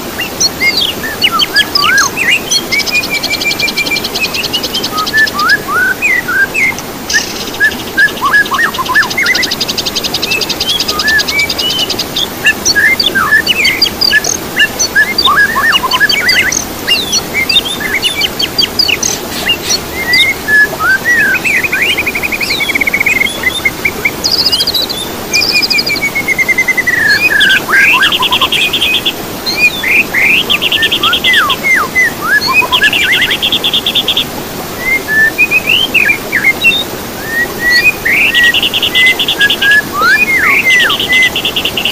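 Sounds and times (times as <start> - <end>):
songbirds singing: 0.0 - 41.9
steady hiss: 5.8 - 27.6.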